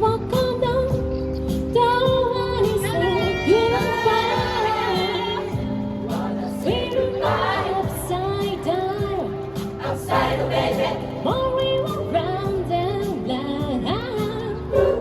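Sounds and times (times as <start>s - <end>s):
choir singing: 3.8s - 8.8s, 9.7s - 11.4s.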